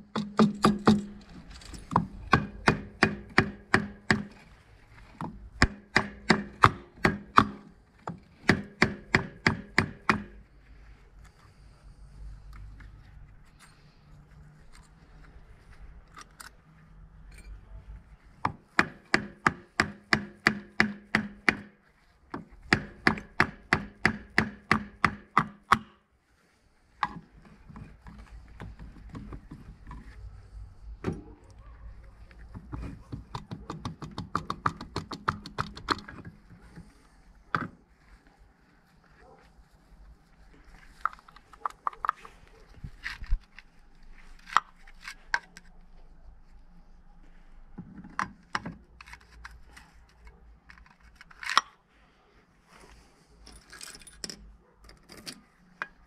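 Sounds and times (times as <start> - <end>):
tool tapping on metal engine: 0.0 - 1.3, 1.9 - 4.3, 5.2 - 10.4, 18.5 - 21.8, 22.4 - 25.9, 32.7 - 36.3.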